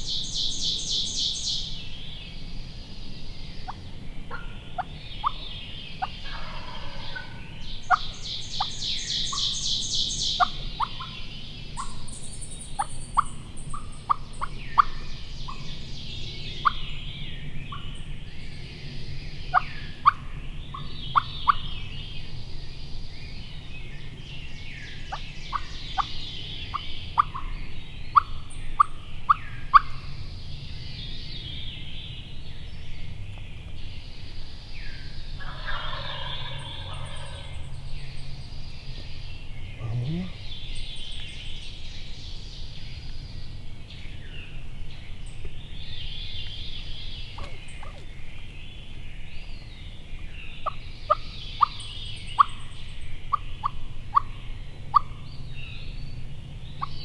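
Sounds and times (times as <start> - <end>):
turkey gobbling: 3.6 - 5.4, 6.0 - 8.7, 12.8 - 15.6, 28.2 - 29.9, 35.4 - 37.8.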